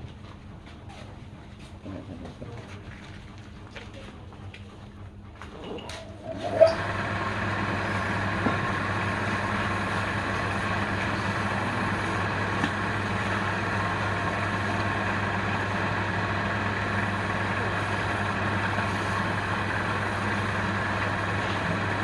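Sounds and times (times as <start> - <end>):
lathe motor whining: 6.2 - 22.0.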